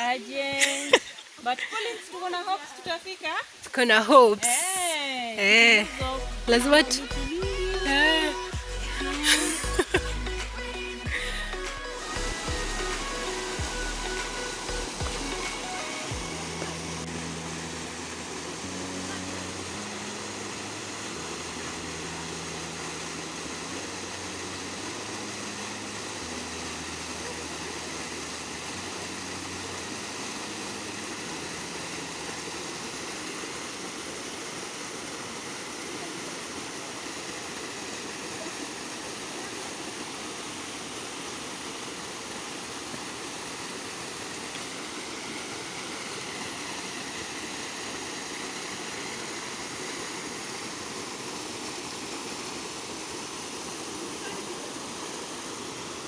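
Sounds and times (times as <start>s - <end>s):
flowing water rushing: 0.0s - 56.0s
low sustained music notes: 9.7s - 34.6s.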